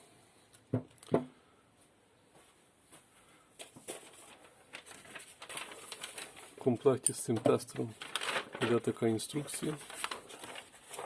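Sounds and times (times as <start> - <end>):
objects knocking on table: 0.7 - 1.3
faint clicks and rustles: 3.6 - 11.0.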